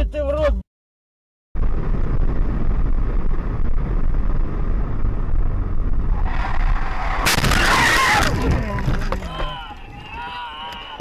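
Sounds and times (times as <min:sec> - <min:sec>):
wind noise on microphone: 0:01.6 - 0:10.3
moving car rumble: 0:01.6 - 0:11.0.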